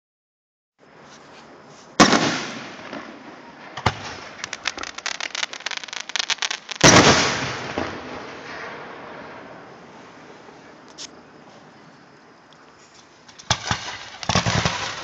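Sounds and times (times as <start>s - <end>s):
crackling pops: 3.8s - 7.2s
firework shell bursts: 4.3s - 7.6s.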